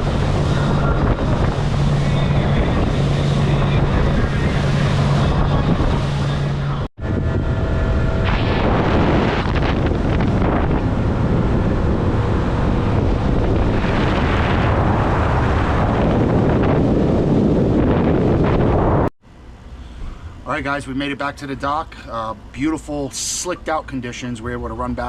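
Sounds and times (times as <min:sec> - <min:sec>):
wind buffeting microphone: 0:00.0 - 0:19.1
boat engine and water rushing: 0:00.0 - 0:25.0.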